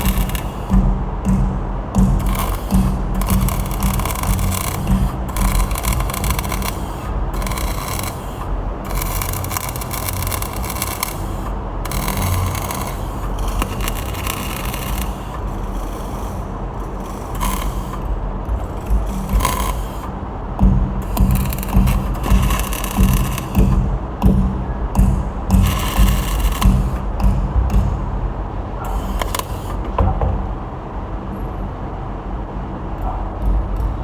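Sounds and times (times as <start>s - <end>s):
arc welding crackling hiss: 0.0s - 0.8s, 2.0s - 20.1s, 21.0s - 23.8s, 25.6s - 27.1s, 28.9s - 29.8s.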